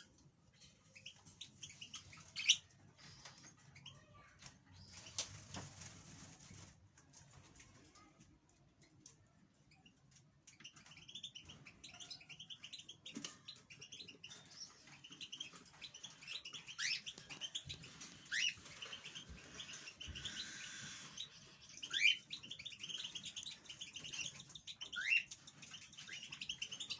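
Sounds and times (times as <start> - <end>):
goldfinch twittering song: 10.5 - 26.9.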